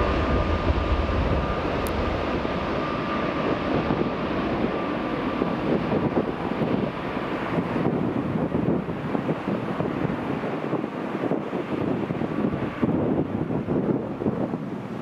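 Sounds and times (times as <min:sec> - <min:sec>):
deep engine rumble: 0:00.0 - 0:10.2
jet engines whining: 0:00.0 - 0:15.0
wind on microphone: 0:00.0 - 0:15.0.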